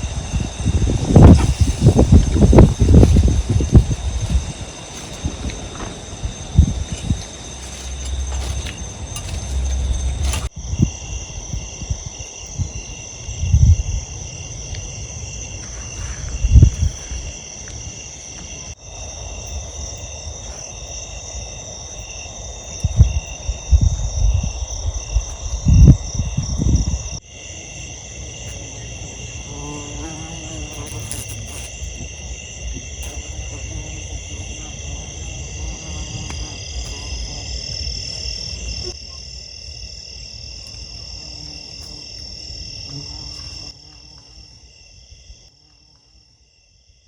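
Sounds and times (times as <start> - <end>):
low thumps and knocks: 0.0 - 10.9
insects chirping: 0.0 - 47.0.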